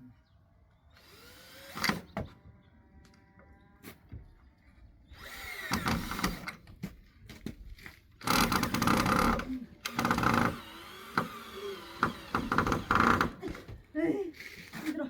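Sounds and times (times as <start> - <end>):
power drill driving a screw: 0.9 - 2.2, 5.1 - 6.6, 8.2 - 13.4.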